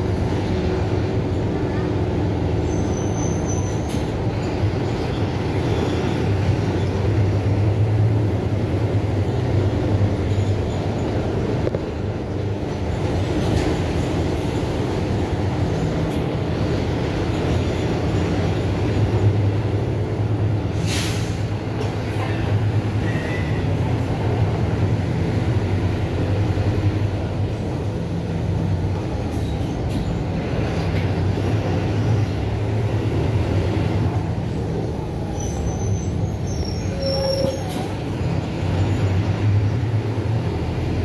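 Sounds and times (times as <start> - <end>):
bus diesel engine running: 0.0 - 41.0
brief hiss: 20.8 - 21.5.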